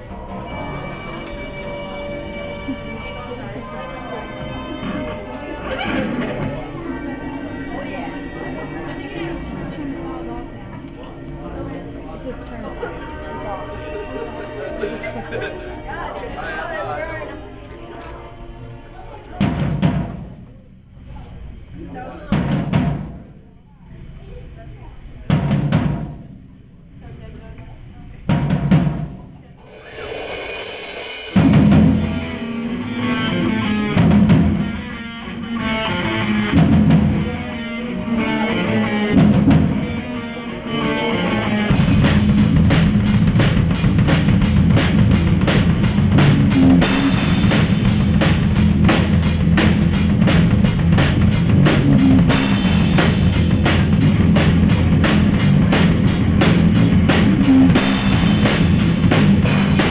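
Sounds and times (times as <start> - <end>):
drum hits: 19.4 - 20.6, 22.3 - 23.5, 25.3 - 26.5, 28.3 - 34.9, 36.5 - 37.4, 39.1 - 40.0, 41.7 - 59.9
live heavy metal band: 29.7 - 59.9.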